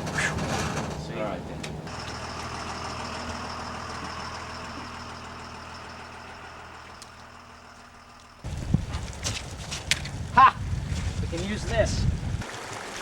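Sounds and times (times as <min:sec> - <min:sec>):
bus engine humming: 0:00.0 - 0:12.4.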